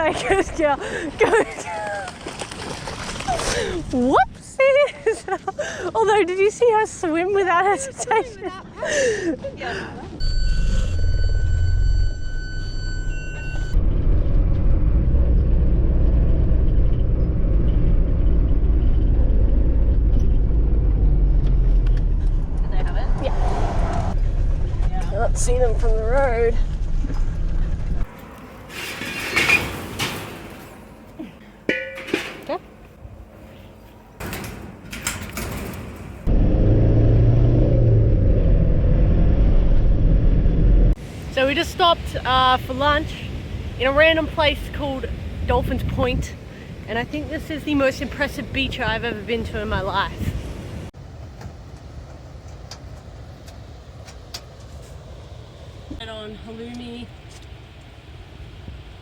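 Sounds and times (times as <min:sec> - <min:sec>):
vehicle engine and road rumble: 0:00.0 - 0:59.0
thin high tones: 0:10.2 - 0:13.8.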